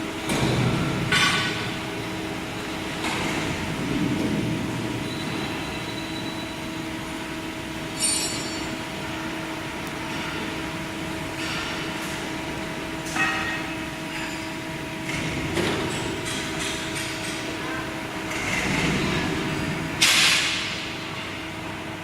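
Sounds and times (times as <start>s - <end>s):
ringing metallic clank: 8.0s - 8.7s, 13.1s - 14.5s.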